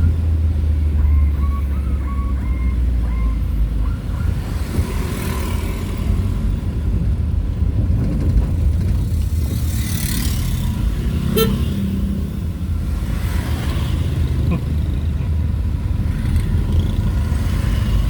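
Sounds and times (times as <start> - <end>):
engine and road rumble: 0.0 - 18.0
whoosh of passing traffic: 3.6 - 18.0.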